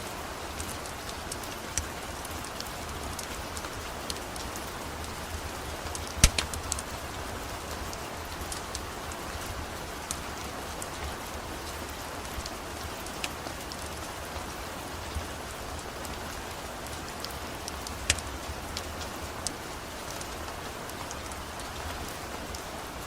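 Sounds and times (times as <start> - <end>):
steady rain falling: 0.0 - 23.0
wood fire crackling and popping: 0.5 - 9.2, 15.1 - 21.9.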